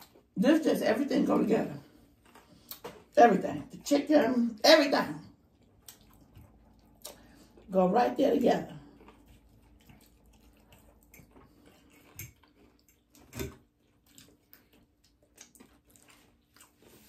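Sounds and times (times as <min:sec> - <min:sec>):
soft chewing: 0:00.0 - 0:00.4, 0:01.4 - 0:04.3, 0:05.2 - 0:17.0
wet mouth clicks: 0:05.8 - 0:07.4.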